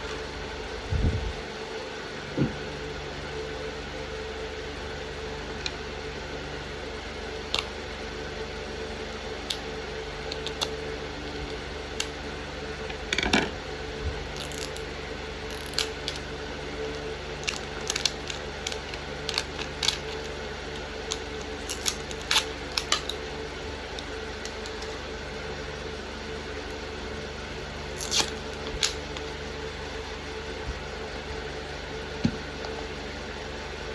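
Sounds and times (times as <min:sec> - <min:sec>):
steady low hum: 0:00.0 - 0:33.9
toy packaging clicks and rustles: 0:17.4 - 0:23.2, 0:27.9 - 0:29.0.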